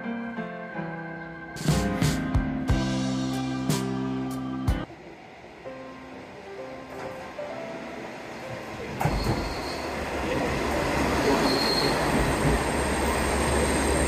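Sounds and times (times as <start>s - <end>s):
train rumbling on rails: 4.8s - 14.0s
high wheel squeals: 9.0s - 10.0s, 11.1s - 14.0s.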